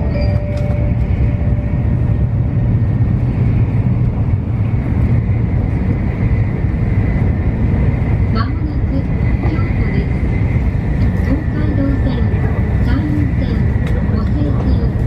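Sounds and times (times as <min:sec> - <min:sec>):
train cabin rumble: 0:00.0 - 0:15.0.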